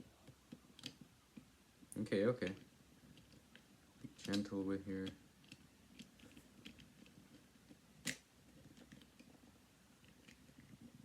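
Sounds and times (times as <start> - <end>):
plastic puzzle cube pieces clicking: 0.2 - 1.1.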